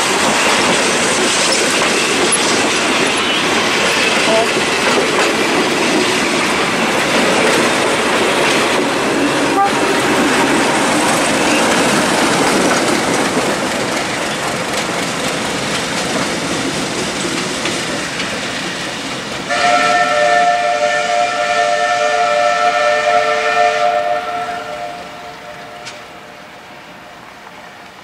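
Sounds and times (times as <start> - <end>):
train wheels clattering: 0.0 - 21.2
train horn blast: 9.5 - 10.0, 19.5 - 27.4.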